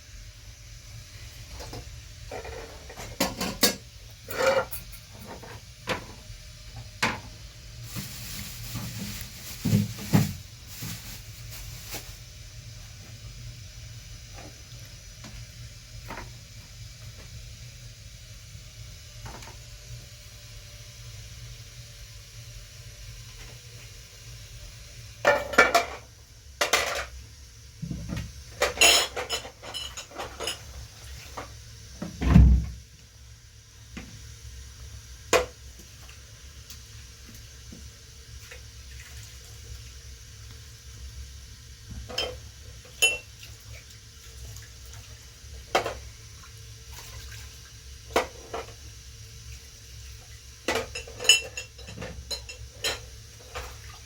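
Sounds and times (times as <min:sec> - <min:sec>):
dishes and utensils clinking: 0:28.6 - 0:30.7, 0:42.1 - 0:43.3, 0:50.7 - 0:53.6.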